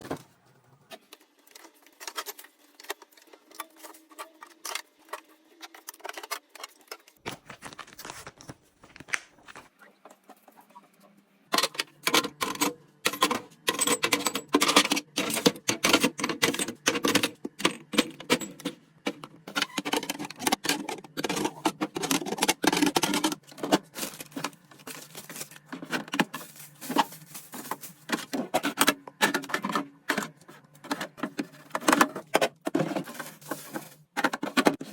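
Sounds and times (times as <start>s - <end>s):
food containers clattering: 11.5s - 34.9s.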